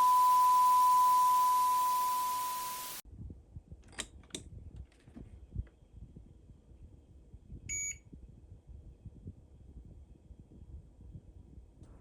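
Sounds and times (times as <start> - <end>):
steady electronic beep: 0.0 - 3.0.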